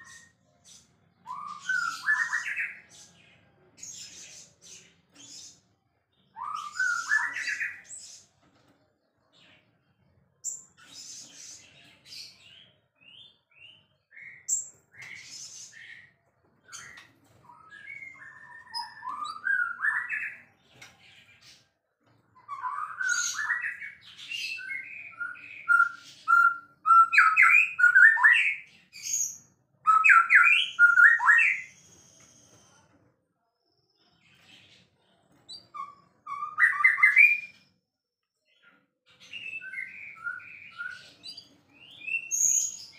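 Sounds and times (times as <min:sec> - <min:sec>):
bird singing whistled phrases: 0:01.2 - 0:02.8, 0:06.3 - 0:07.8, 0:17.5 - 0:20.4, 0:22.5 - 0:28.7, 0:29.3 - 0:32.5, 0:35.8 - 0:37.6, 0:39.3 - 0:41.2.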